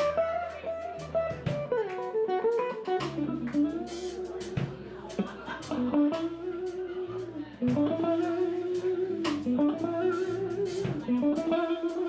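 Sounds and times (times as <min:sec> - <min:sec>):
bass line: 0:00.0 - 0:12.0
electric guitar sliding notes: 0:00.0 - 0:12.0
drums with cymbal hits: 0:01.0 - 0:01.8, 0:02.9 - 0:06.2, 0:07.6 - 0:11.5.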